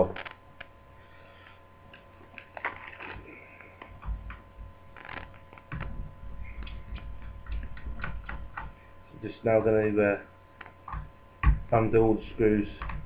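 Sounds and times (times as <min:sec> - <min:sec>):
faint electrical hum: 0:00.0 - 0:13.0
laptop and small parts handled: 0:02.2 - 0:03.2.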